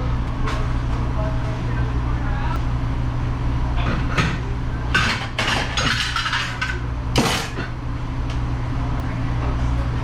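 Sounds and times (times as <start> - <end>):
steady low hum: 0.0 - 10.0
dishes and silverware clattering: 3.8 - 7.7.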